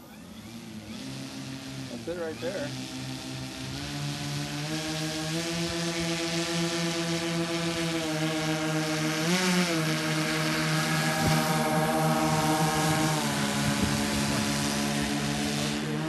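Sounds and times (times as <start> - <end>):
electric motors and propellers whining: 0.0 - 16.0.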